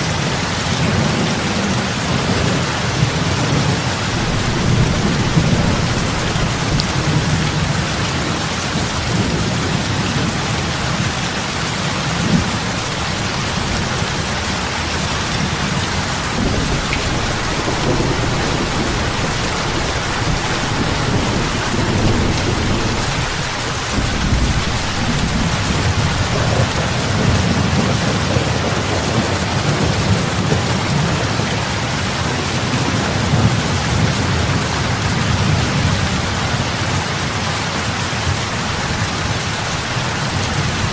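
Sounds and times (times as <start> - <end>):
heavy rain on lake water: 0.0 - 40.9
deep low rumble: 3.8 - 8.1.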